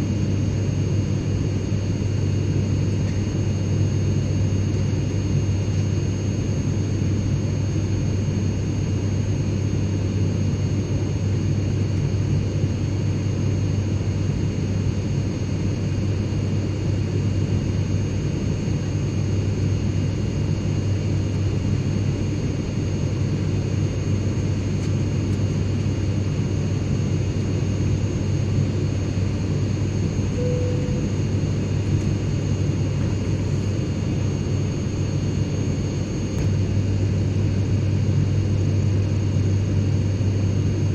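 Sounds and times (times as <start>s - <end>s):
airplane engine drone: 0.0s - 40.9s
faint high-pitched whines: 30.3s - 31.4s.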